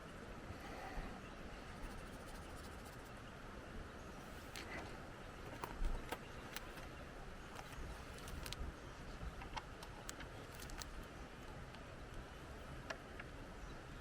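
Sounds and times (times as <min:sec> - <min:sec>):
pencil scratching on paper: 0:01.8 - 0:03.1.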